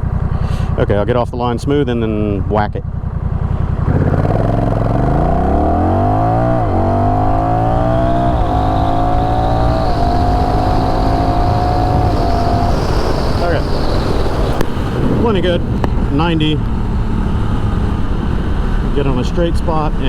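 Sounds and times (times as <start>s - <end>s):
motorcycle engine accelerating: 0.0s - 20.0s
gear shifts: 3.4s - 19.3s
wind noise: 5.8s - 20.0s.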